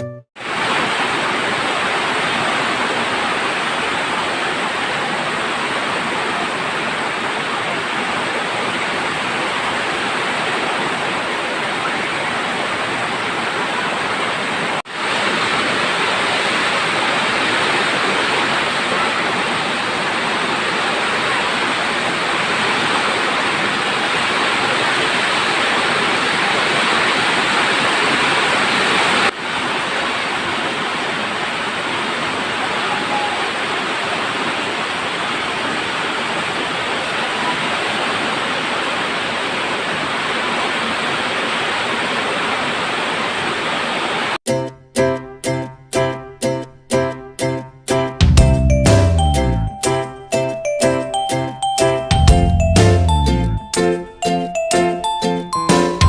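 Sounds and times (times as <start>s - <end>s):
heavy rain pouring: 0.4s - 44.4s.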